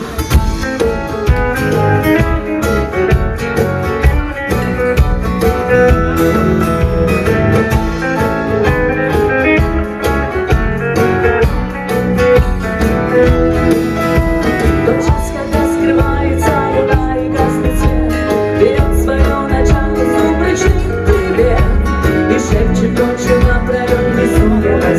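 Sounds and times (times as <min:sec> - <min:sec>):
rock band playing live: 0:00.0 - 0:24.9.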